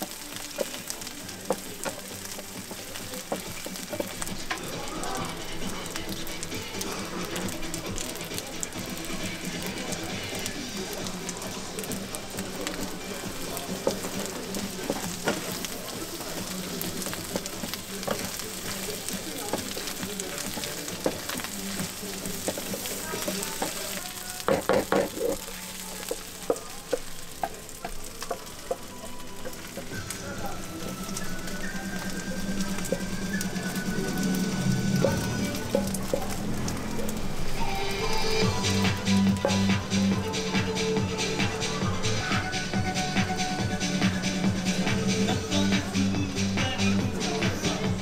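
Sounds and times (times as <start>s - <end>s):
food sizzling in a frying pan: 0.0s - 48.0s
wooden spatula scraping a pan: 11.9s - 31.2s
knocks against the pan: 24.5s - 25.4s.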